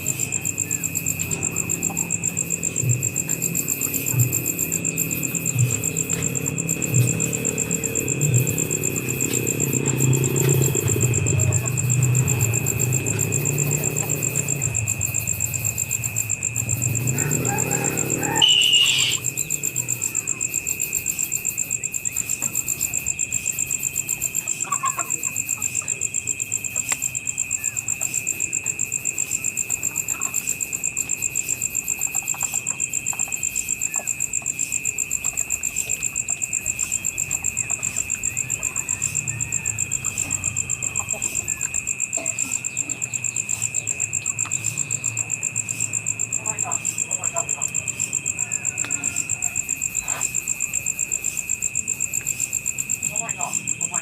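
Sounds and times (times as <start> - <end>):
vehicle engine running: 0.0 - 18.6, 36.1 - 42.5
insects trilling: 0.0 - 54.0
faint bird calls: 17.4 - 19.3.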